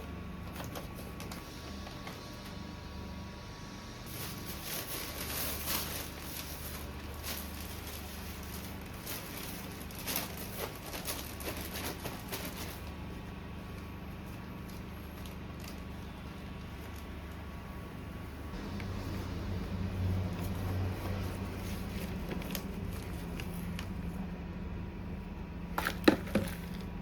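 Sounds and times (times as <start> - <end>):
steady low hum: 0.0 - 27.0
rustling and light crackling: 4.0 - 17.8.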